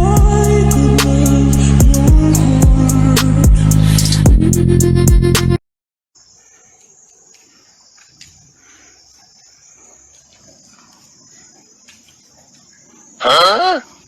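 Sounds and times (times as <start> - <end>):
loud music: 0.0 - 5.6
insects chirring: 6.2 - 14.0.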